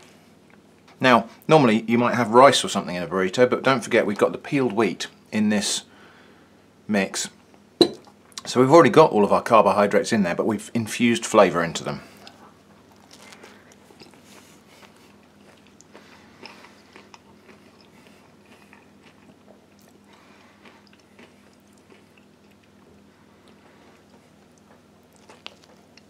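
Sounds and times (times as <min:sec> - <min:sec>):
steady low hum: 0:00.0 - 0:26.0
chewing with small crunches: 0:12.1 - 0:26.0.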